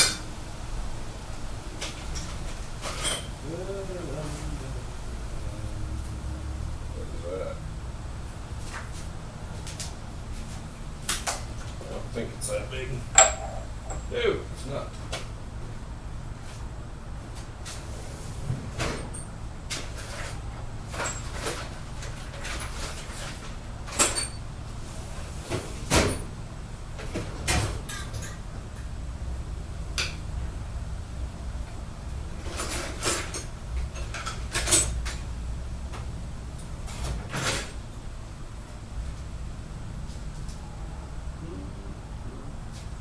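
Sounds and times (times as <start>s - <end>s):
low steady hum: 0.0s - 36.9s, 37.5s - 43.0s
metal hand tools clinking: 13.2s - 14.1s.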